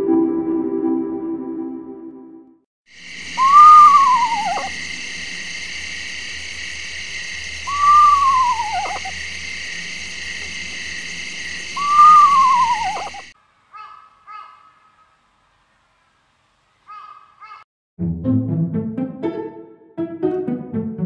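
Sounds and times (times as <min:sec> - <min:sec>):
steady hiss: 0:03.0 - 0:13.8
bird whistling call: 0:03.3 - 0:04.7, 0:07.6 - 0:09.2, 0:11.7 - 0:13.3.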